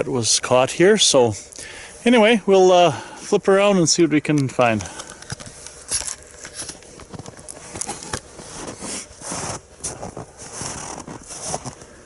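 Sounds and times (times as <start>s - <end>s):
footsteps crunching in snow: 5.3s - 12.0s.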